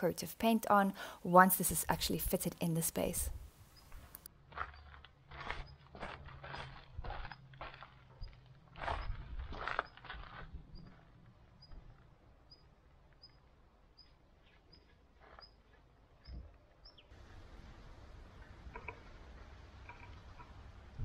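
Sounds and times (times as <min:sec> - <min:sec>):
outdoor background noise: 0:00.0 - 0:21.0
small bird chirping: 0:03.3 - 0:04.9, 0:11.6 - 0:17.1.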